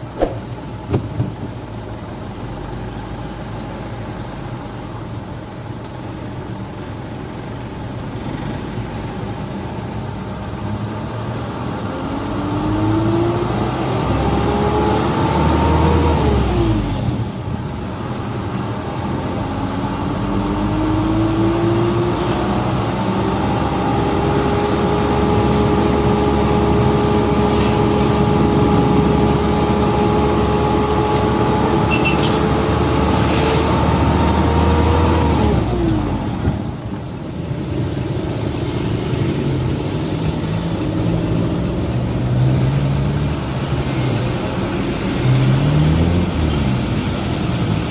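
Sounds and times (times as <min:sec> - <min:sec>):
truck engine whine accelerating: 0:10.7 - 0:17.5, 0:18.1 - 0:47.9.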